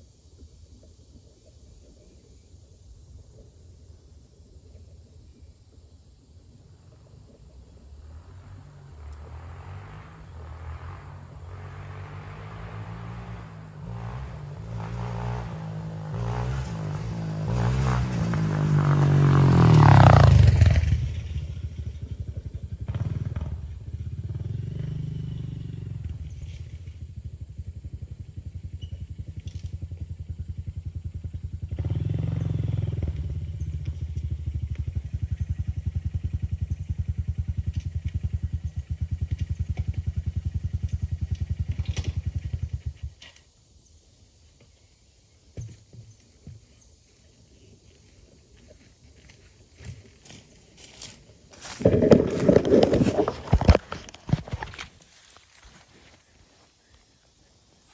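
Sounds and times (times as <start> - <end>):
dirt bike engine revving: 8.1 - 43.0, 49.8 - 56.2.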